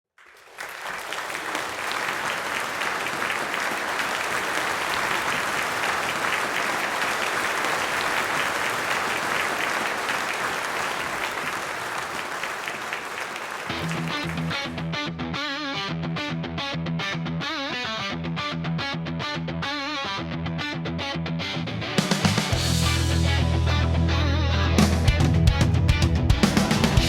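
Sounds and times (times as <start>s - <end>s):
audience applauding: 0.2s - 14.8s
electric guitar playing: 13.7s - 27.0s.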